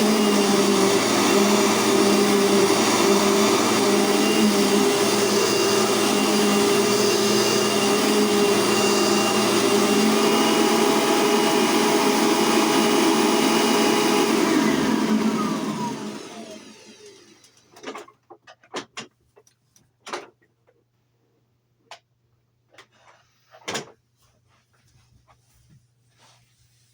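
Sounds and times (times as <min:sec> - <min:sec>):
vacuum cleaner running: 0:00.0 - 0:17.8
faint clicks and knocks: 0:17.5 - 0:21.0.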